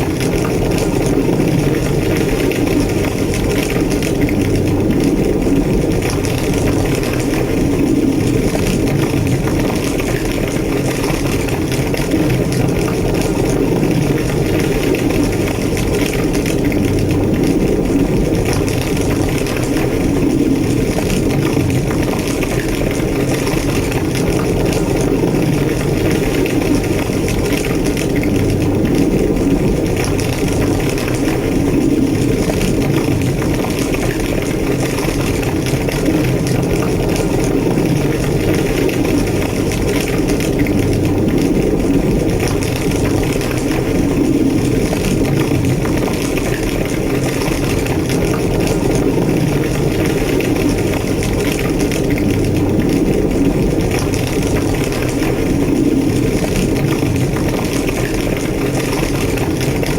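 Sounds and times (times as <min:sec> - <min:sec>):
fire crackling: 0:00.0 - 0:59.9
large fire roaring: 0:00.0 - 0:59.9.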